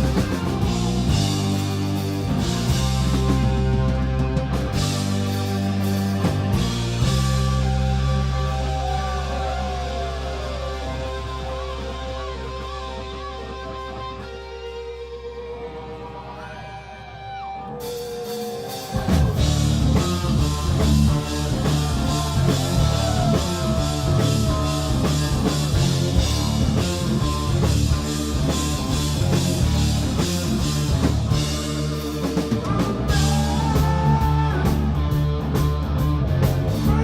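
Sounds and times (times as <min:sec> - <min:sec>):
rock band playing loud: 0:00.0 - 0:37.0.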